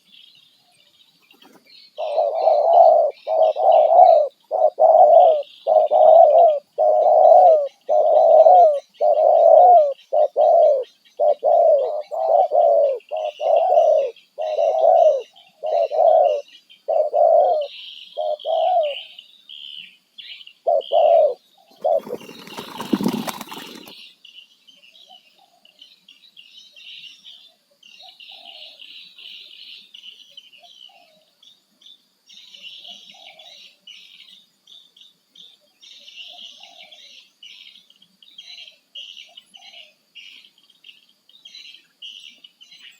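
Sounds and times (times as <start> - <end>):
small birds chirping: 0.0 - 42.9
dove cooing: 2.0 - 19.2, 20.6 - 24.0, 32.8 - 33.6.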